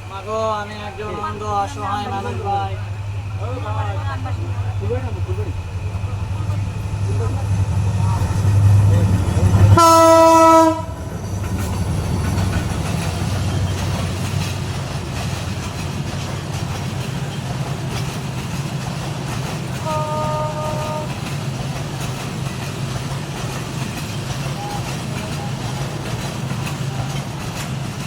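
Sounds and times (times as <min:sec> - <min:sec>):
passing train rumble: 0:00.0 - 0:28.0
train horn: 0:02.0 - 0:11.2, 0:19.8 - 0:21.4.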